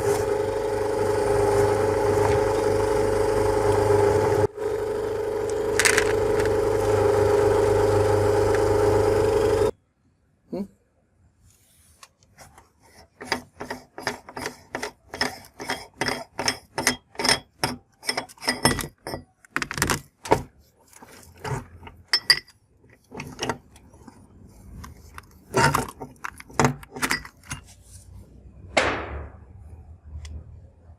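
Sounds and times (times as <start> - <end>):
candy crunching in meat grinder: 5.3 - 9.7.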